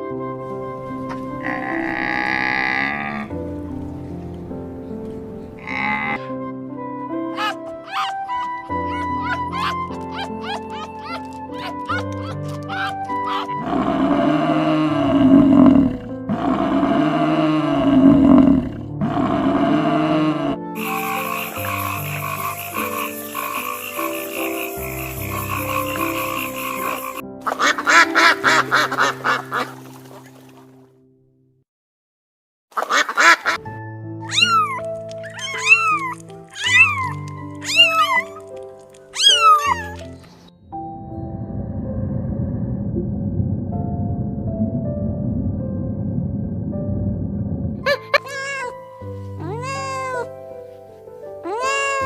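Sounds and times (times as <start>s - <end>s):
light background music: 0.0s - 31.0s, 33.2s - 46.1s, 47.8s - 52.0s
large animal roaring: 1.4s - 3.4s, 5.6s - 6.3s, 12.8s - 27.2s
cat meowing: 7.4s - 13.5s, 34.2s - 38.4s, 39.2s - 40.2s, 47.9s - 50.4s, 51.4s - 52.0s.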